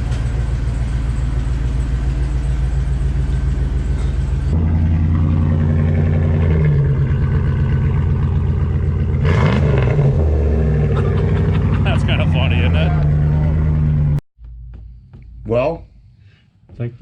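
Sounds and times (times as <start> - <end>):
loud engine exhaust: 0.0 - 14.2.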